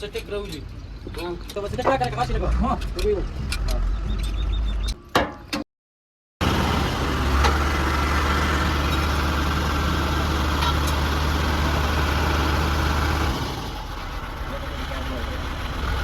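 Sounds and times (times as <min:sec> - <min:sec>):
truck engine idling: 0:06.4 - 0:16.0.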